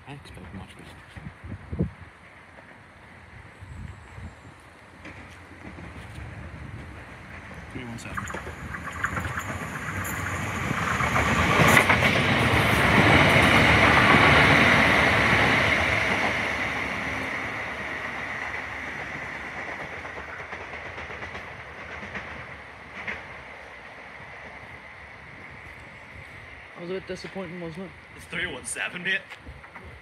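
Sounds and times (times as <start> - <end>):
train passing through station: 0.0 - 30.0.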